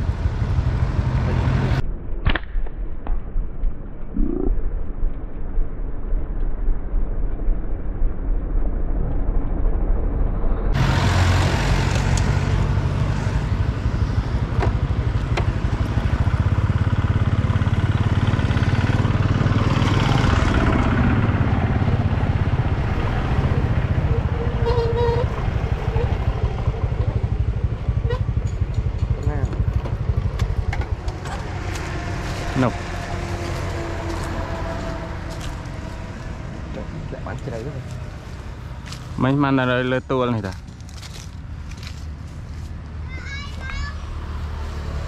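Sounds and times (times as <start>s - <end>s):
vehicle engine running: 10.8s - 45.0s.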